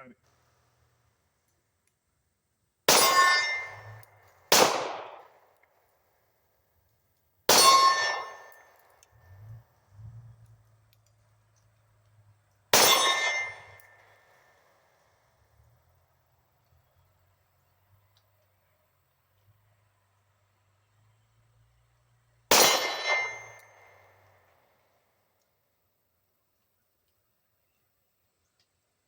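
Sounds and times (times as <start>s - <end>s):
steel target ringing: 2.9s - 4.0s, 7.5s - 8.7s, 12.8s - 14.1s, 22.5s - 23.8s
pistol shots: 2.9s - 5.4s, 7.5s - 8.8s, 12.7s - 14.0s, 22.5s - 24.0s.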